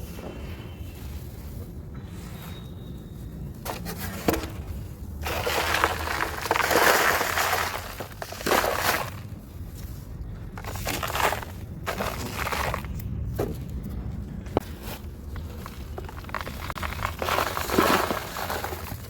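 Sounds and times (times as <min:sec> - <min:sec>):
dry material crunching: 0:03.6 - 0:13.0, 0:14.6 - 0:19.0.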